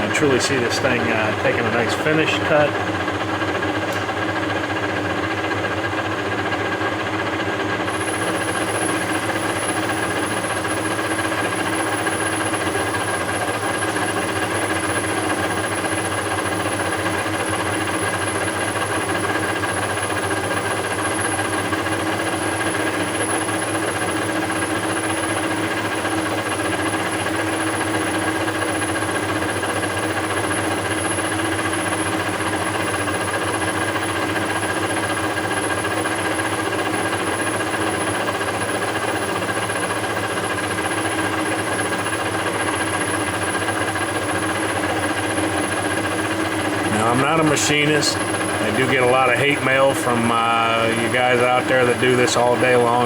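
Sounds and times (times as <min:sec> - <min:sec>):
lathe whirring and humming: 0:00.0 - 0:53.0
thin high whine: 0:07.9 - 0:21.2, 0:41.8 - 0:53.0.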